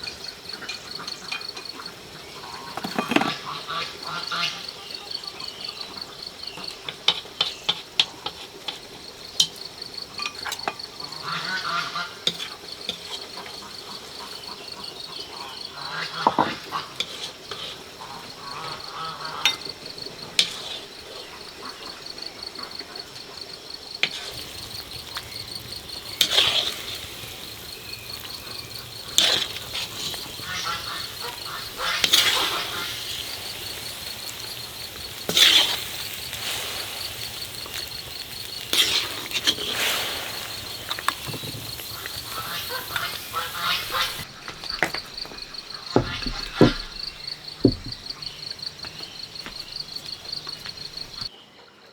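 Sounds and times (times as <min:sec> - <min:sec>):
insects chirring: 0:00.0 - 0:51.3
sharp clicks and knocks: 0:44.5 - 0:48.4.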